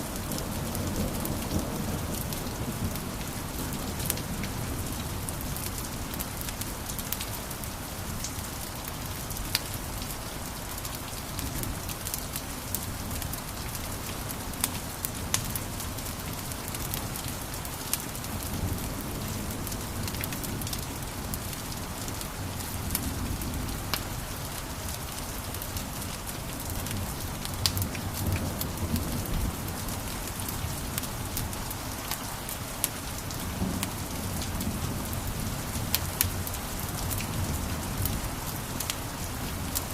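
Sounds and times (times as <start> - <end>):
fire crackles and pops: 22.5 - 39.9
wood fire flames rumbling: 26.5 - 32.2.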